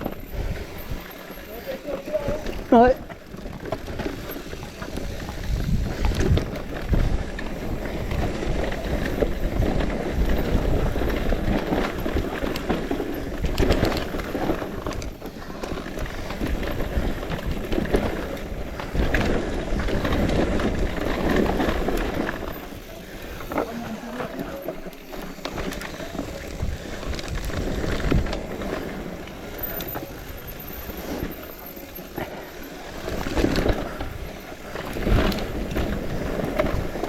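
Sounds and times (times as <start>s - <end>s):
bicycle rolling and rattling: 0.0s - 37.0s
wind buffeting microphone: 2.2s - 24.4s, 25.2s - 31.4s.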